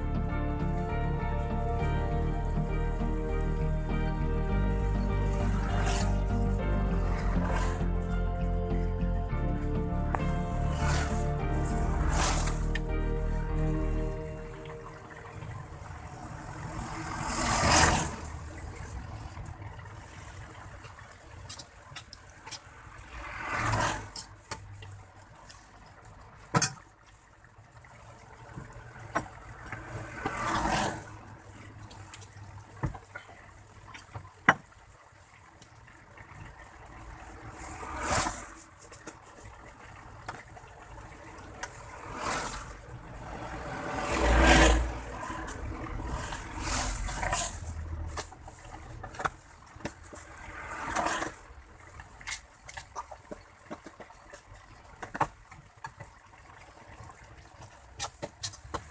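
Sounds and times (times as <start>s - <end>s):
heavy low rumble: 0.0s - 17.4s
vehicles whooshing past: 0.0s - 21.4s, 22.7s - 26.3s, 28.2s - 32.8s, 36.6s - 52.4s.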